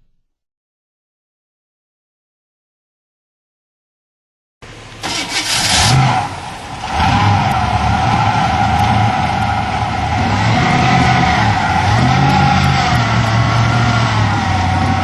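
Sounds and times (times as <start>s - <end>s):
boat engine running: 4.6s - 15.0s.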